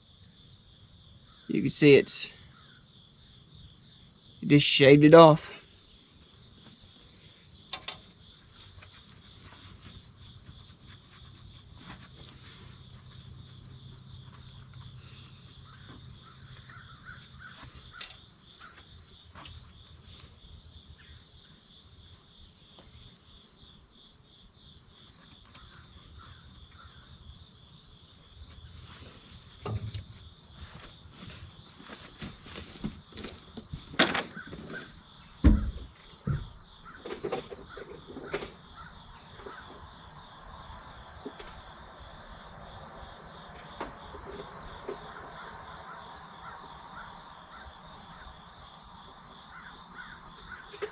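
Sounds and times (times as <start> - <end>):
high-pitched insect chorus: 0.0 - 50.9
sharp knocks: 29.6 - 30.2, 33.6 - 37.6.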